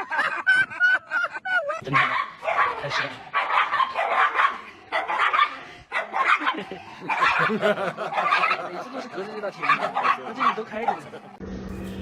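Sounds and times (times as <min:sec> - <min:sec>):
dog barking and yipping: 0:01.8 - 0:08.8, 0:09.4 - 0:11.2.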